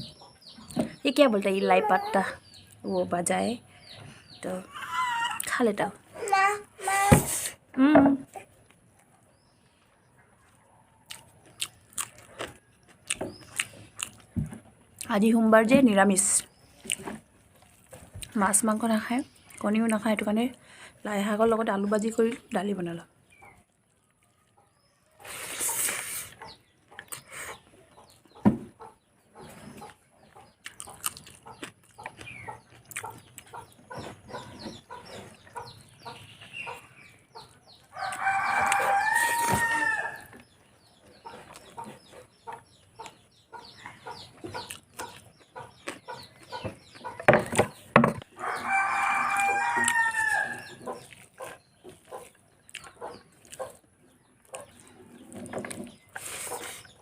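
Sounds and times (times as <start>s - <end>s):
close-up chewing: 8.5s - 15.1s, 23.2s - 39.3s, 40.2s - 47.3s, 49.2s - 57.0s
rooster crowing: 38.0s - 40.3s, 48.4s - 50.6s.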